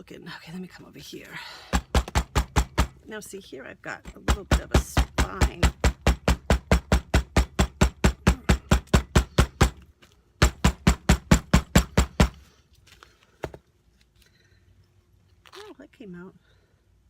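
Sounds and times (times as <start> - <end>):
hammer pounding on tabletop: 10.4 - 12.4.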